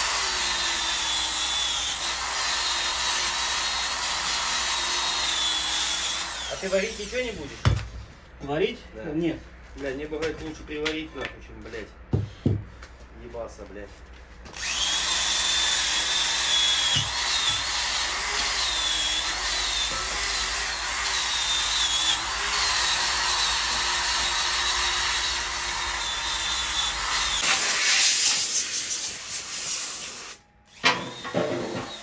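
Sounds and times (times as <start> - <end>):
power tool whining under load: 14.5 - 27.9, 30.7 - 32.0.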